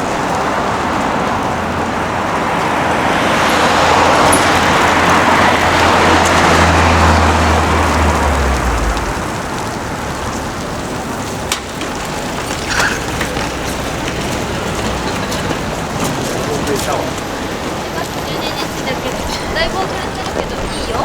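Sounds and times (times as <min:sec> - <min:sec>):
street traffic noise: 0:00.0 - 0:21.0
vehicle passing by: 0:00.0 - 0:21.0.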